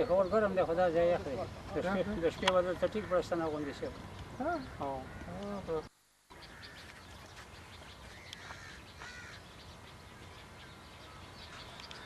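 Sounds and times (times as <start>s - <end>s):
birds calling: 0.0s - 12.0s
steady background hiss: 0.0s - 12.0s.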